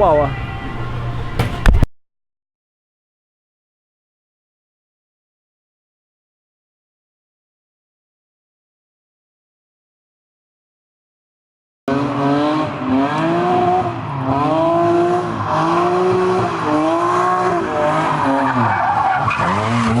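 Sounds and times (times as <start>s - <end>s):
car engine revving: 11.9s - 20.0s
tires squealing: 11.9s - 20.0s.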